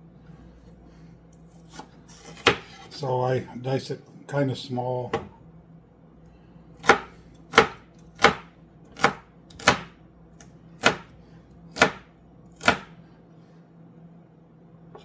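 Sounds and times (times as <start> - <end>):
knife chopping on cutting board: 1.6 - 2.9, 6.8 - 10.0, 10.8 - 13.0.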